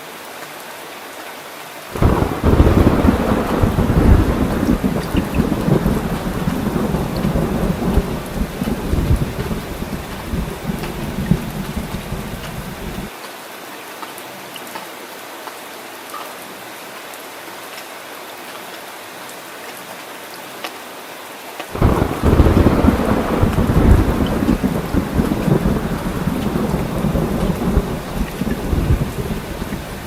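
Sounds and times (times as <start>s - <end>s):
rain hissing: 1.9s - 13.1s, 21.7s - 30.0s
thunder rumbling: 2.0s - 13.1s, 21.8s - 30.0s.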